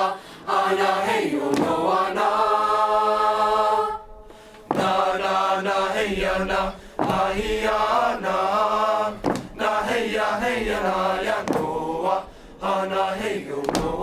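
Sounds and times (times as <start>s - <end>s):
choir singing a chant: 0.0s - 14.0s.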